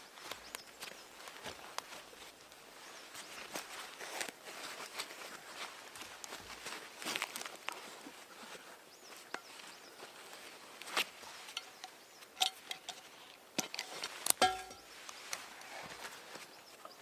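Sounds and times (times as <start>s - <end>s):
ringing metallic clink: 11.6s - 13.8s, 14.4s - 14.9s.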